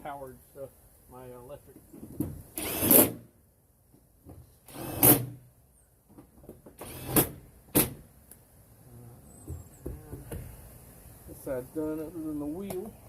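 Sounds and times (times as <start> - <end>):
cordless power tool bursts: 2.5 - 3.2, 4.7 - 5.4, 6.8 - 8.0.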